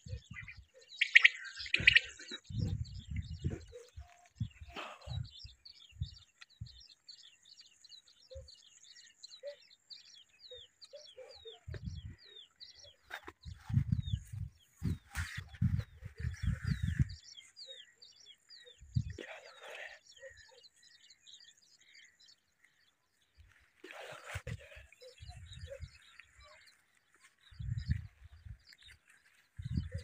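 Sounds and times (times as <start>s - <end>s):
bird chirping: 0.0s - 23.6s.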